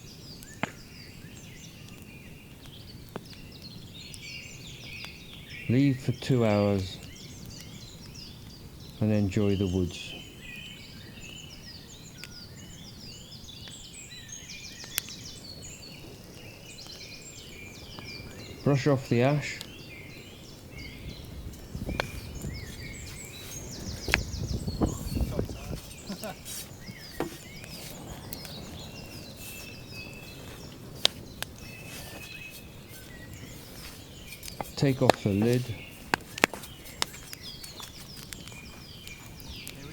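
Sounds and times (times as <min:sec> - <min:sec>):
birds singing and chirping: 0:00.0 - 0:39.9
thin held bird whistle: 0:31.6 - 0:34.6.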